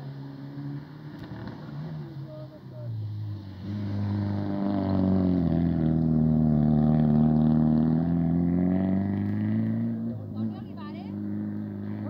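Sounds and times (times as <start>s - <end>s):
car engine revving hard: 3.3s - 12.0s.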